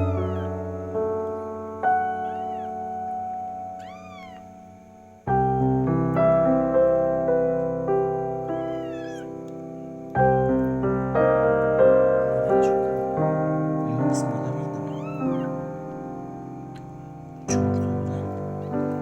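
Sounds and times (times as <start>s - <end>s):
kitten meowing: 0.0s - 0.8s, 1.9s - 4.7s, 8.5s - 9.5s, 14.7s - 15.9s, 17.5s - 19.0s
soft piano music: 0.0s - 19.0s.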